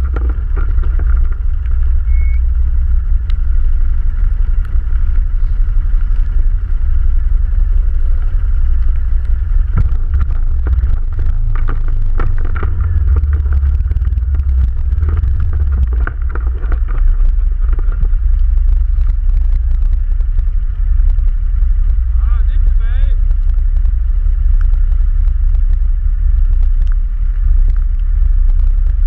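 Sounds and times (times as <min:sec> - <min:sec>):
knocks and rattles: 0:00.0 - 0:02.0, 0:09.6 - 0:24.0
atv engine running: 0:00.0 - 0:29.0.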